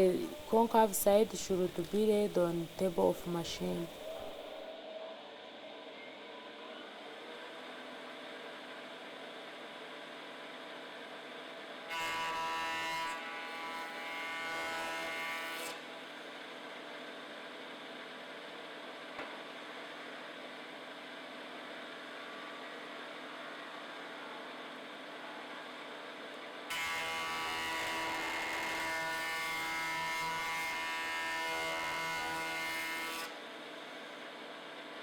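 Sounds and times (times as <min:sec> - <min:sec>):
planer cutting whine: 0:11.9 - 0:16.1, 0:26.7 - 0:33.5
surface planer running: 0:26.7 - 0:33.5.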